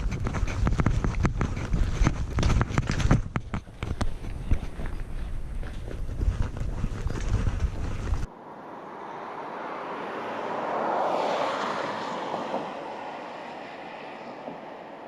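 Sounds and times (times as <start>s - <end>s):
train rumbling and knocking: 11.9s - 15.0s.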